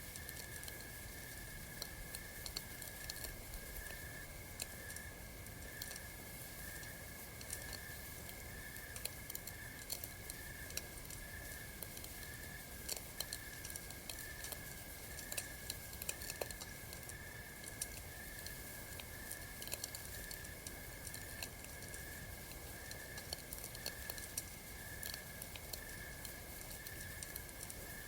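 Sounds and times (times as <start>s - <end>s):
campfire crackling: 0.1s - 28.0s
night insects chirping: 17.0s - 28.0s.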